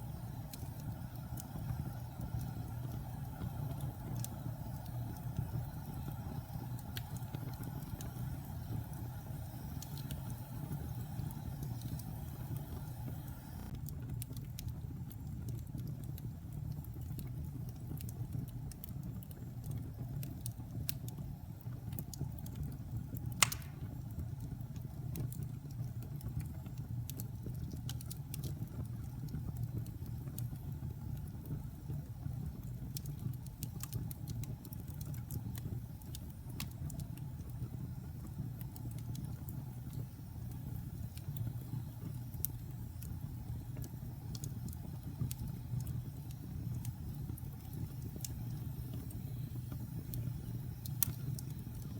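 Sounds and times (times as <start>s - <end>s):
fire crackling: 0.0s - 51.9s
low rumble of flames: 0.0s - 51.9s
sharp fire pop: 23.4s - 24.0s.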